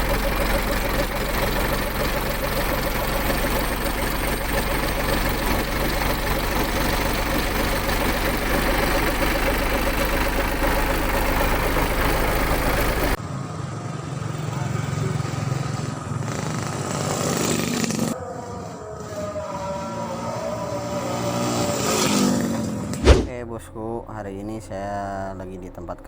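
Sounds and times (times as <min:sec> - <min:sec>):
truck diesel engine idling: 0:00.0 - 0:13.2.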